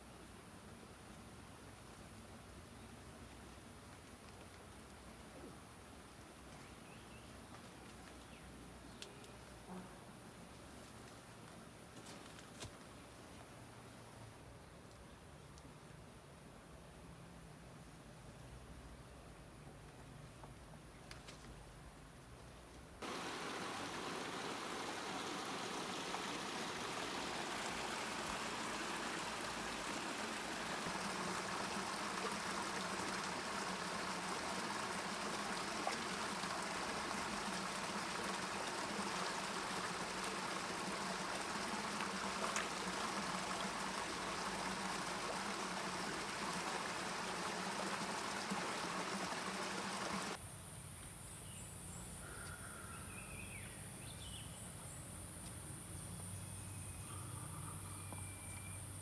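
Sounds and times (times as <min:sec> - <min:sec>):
flowing stream water: 0:23.0 - 0:50.4.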